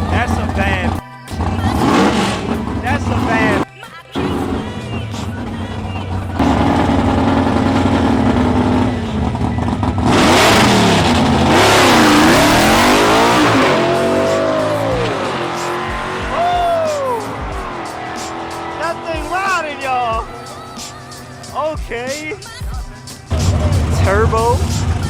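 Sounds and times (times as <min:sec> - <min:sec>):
drag racing engines revving: 0:00.0 - 0:25.0.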